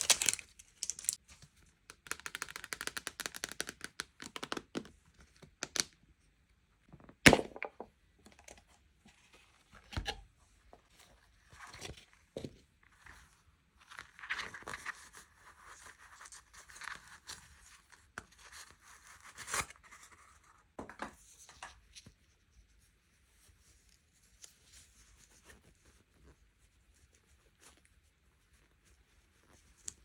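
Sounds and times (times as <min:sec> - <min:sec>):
packaging rustling: 0:00.0 - 0:01.2.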